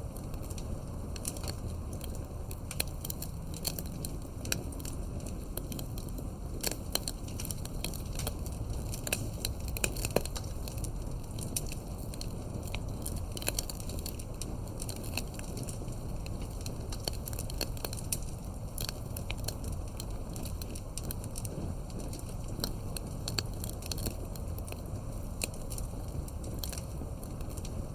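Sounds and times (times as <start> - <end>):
campfire crackling and popping: 0.0 - 27.9.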